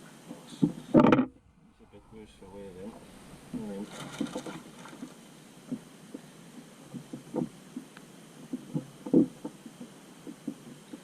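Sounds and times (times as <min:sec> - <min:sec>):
dull thumps and knocks: 0:01.0 - 0:01.4, 0:08.4 - 0:10.8.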